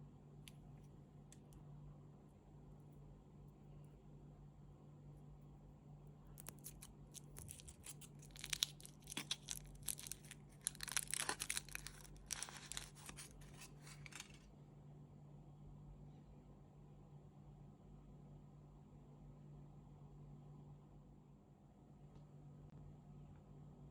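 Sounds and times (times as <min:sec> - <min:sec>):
chocolate wrapper crinkling: 0:06.4 - 0:14.5.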